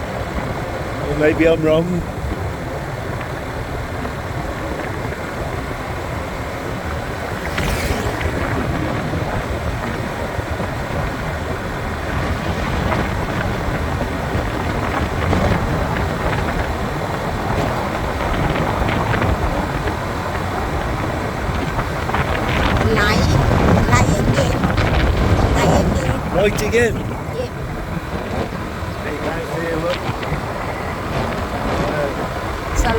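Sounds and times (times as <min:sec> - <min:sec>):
wind rumbling on microphone: 0:00.0 - 0:32.9
motorbike running: 0:00.1 - 0:32.9
sharp rustle: 0:07.2 - 0:08.6.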